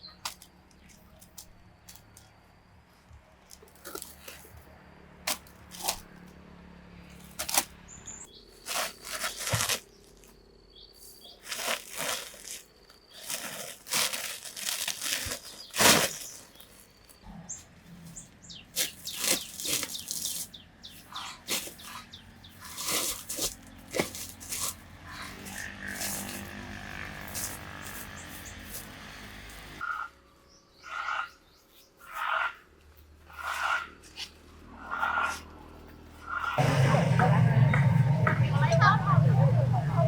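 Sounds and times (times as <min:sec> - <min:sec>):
leaves and twigs rustling: 0:08.4 - 0:17.2, 0:18.1 - 0:29.8.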